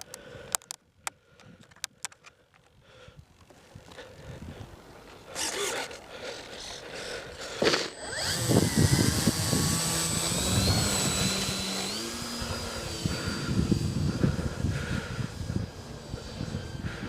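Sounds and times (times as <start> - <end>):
model plane motor whine: 5.2 - 17.0.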